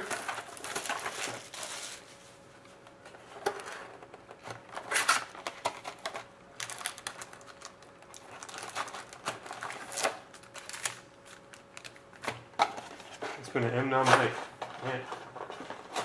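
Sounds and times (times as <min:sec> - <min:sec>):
plastic wrapping crinkling and tearing: 0:00.0 - 0:02.2, 0:04.7 - 0:13.1.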